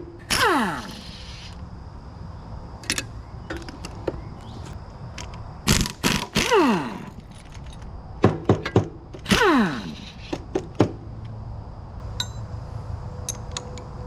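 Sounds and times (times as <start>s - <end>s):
impact wrench whirring: 5.7s - 7.1s.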